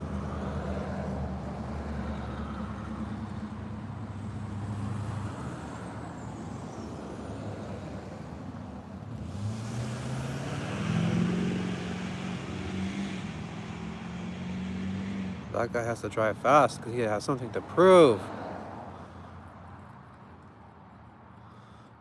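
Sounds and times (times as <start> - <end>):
car engine hum: 0.0 - 21.8.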